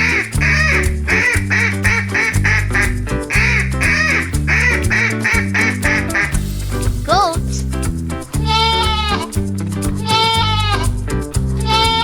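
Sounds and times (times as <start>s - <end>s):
duck quacking: 0.0s - 6.4s
cheerful background music: 0.0s - 12.0s.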